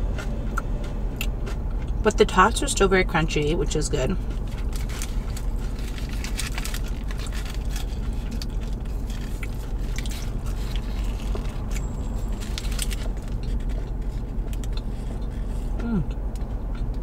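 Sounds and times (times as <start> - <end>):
steady low hum: 0.0 - 17.0
chewing with mouth clicks: 0.1 - 2.4, 4.1 - 17.0
biting into a burger: 4.2 - 17.0.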